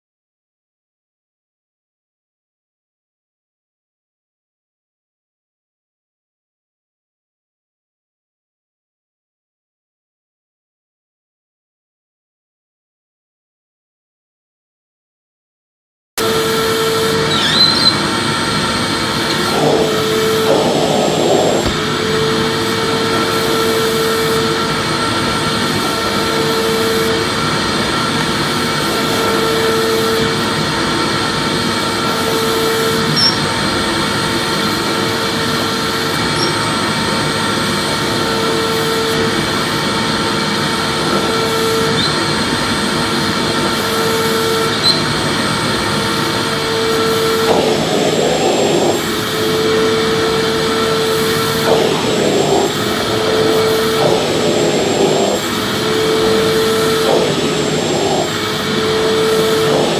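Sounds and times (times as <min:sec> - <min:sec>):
vacuum cleaner running: 0:16.2 - 0:59.9.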